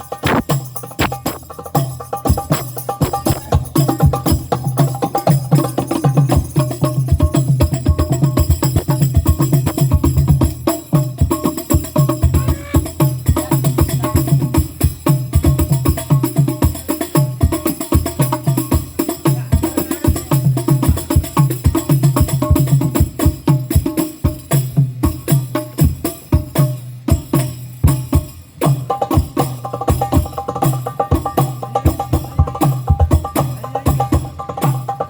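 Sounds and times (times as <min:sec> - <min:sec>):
frame drums: 0:00.0 - 0:35.0
tambourine: 0:00.0 - 0:35.0
deep bass drum: 0:00.1 - 0:01.5.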